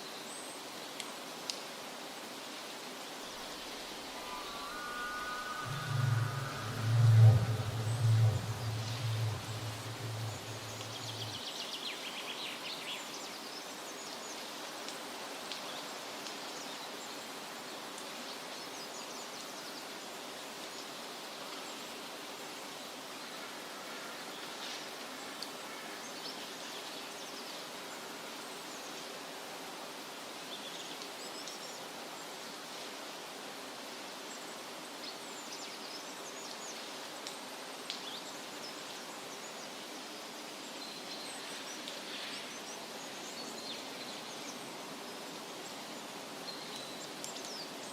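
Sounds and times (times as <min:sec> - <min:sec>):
outdoor background hiss: 0:00.0 - 0:47.9
low hum: 0:03.8 - 0:11.4
short high bird calls: 0:04.0 - 0:11.4.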